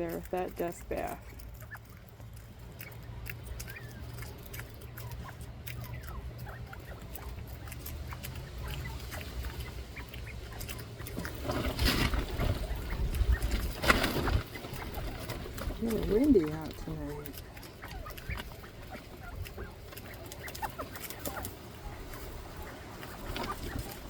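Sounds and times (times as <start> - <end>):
pecking and scratching ticks: 0.0 - 24.0
quail chirping softly: 0.0 - 24.0
wind rumble on microphone: 11.3 - 17.4.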